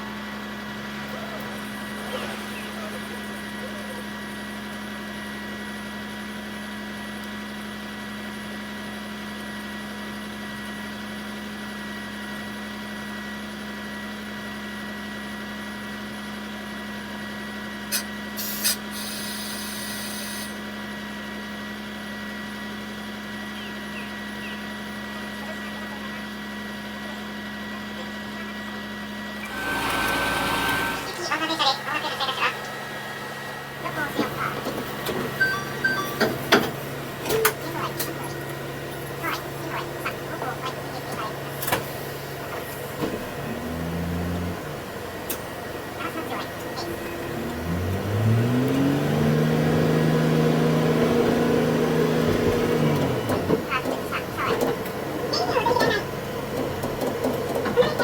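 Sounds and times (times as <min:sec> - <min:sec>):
diesel railcar engine hum: 0:00.0 - 0:58.0
short hiss: 0:17.9 - 0:20.6.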